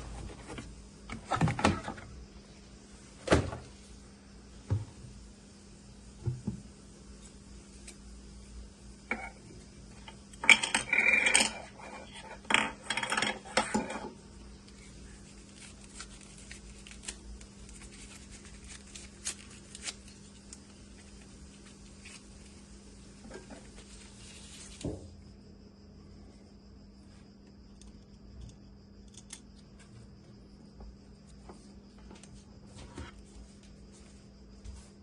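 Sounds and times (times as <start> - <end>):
small ticks: 27.4 - 30.1.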